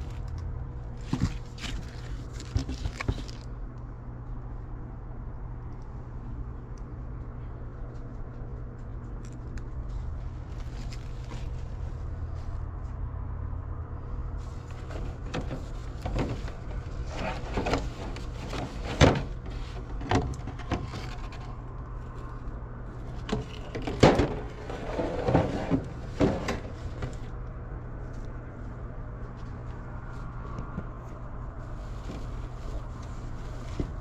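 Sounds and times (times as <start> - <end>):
steady low hum: 0.0 - 34.0
objects being rummaged through: 0.9 - 3.5, 14.5 - 21.6, 23.0 - 27.3.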